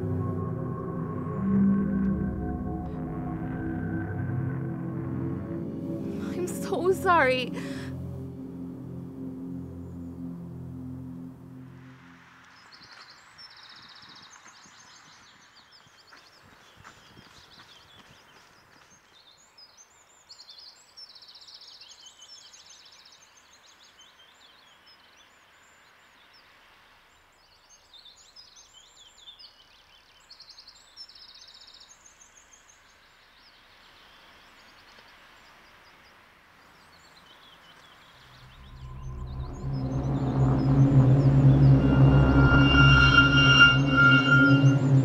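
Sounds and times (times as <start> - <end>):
music: 0.0 - 12.5, 38.4 - 45.0
songbirds chirping and trilling: 12.4 - 45.0
faint steady hiss: 21.8 - 38.4.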